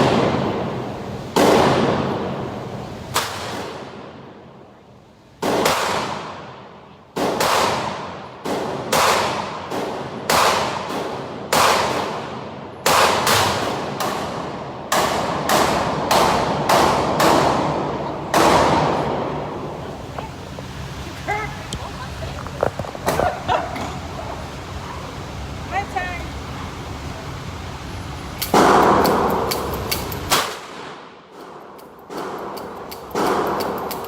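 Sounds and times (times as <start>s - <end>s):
echoing gunshots: 1.4s - 2.5s, 5.4s - 6.6s, 7.2s - 19.7s, 28.5s - 29.6s, 30.3s - 33.9s.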